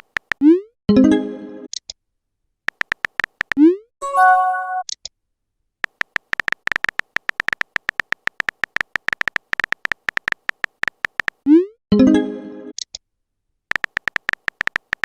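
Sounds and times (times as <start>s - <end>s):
electronic key ticks: 0.0s - 0.5s, 2.7s - 3.6s, 5.8s - 11.4s, 13.7s - 15.0s.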